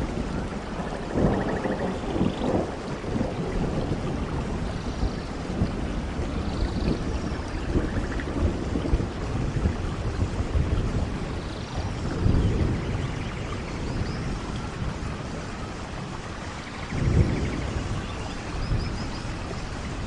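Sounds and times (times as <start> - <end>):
rolling thunder: 0.0 - 20.0
steady rain: 0.0 - 20.0.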